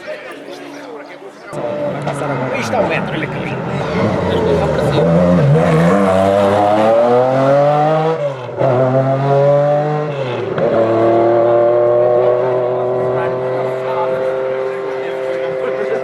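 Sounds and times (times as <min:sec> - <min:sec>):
rally car engine accelerating: 0:01.6 - 0:16.0.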